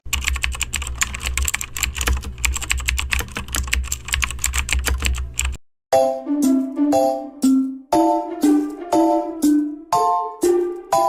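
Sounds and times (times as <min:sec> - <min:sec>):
fast typing on keyboard: 0:00.0 - 0:05.6.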